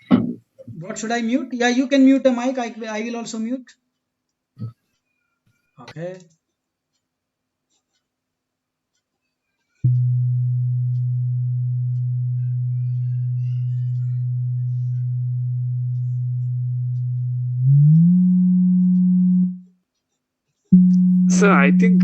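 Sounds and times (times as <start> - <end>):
low sine test tone: 9.8 - 19.7, 20.7 - 22.0.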